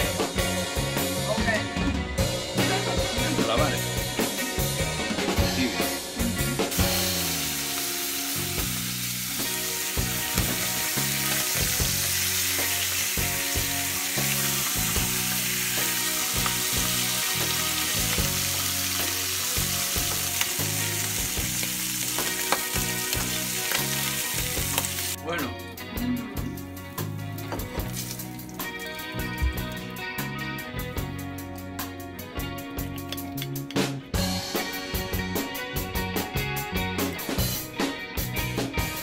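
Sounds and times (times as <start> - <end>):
squid sizzling in oil: 6.7 - 25.2.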